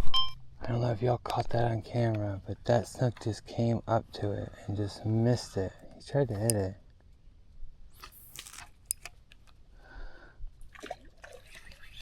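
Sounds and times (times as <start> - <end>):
water splashing and dripping: 10.7 - 12.0.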